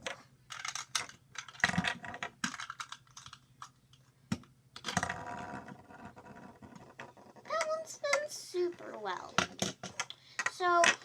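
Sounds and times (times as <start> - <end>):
plastic toys clicking: 0.0 - 5.2, 7.5 - 11.0.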